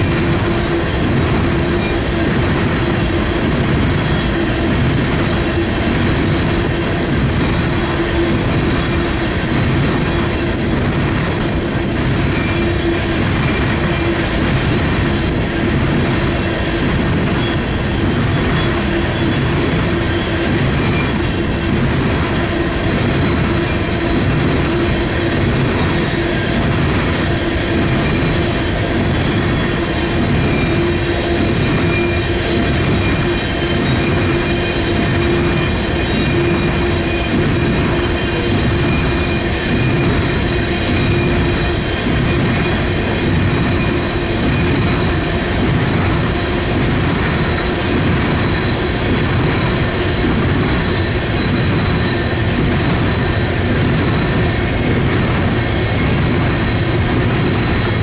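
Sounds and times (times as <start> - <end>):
high wheel squeal: 0.0 - 58.0
train wheels clattering on rails: 0.0 - 58.0.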